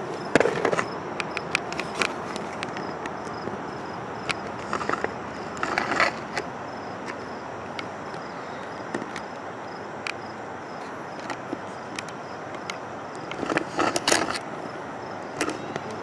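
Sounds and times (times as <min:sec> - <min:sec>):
steady background hiss: 0:00.0 - 0:16.0
scattered clicks: 0:00.3 - 0:03.5, 0:11.2 - 0:14.5.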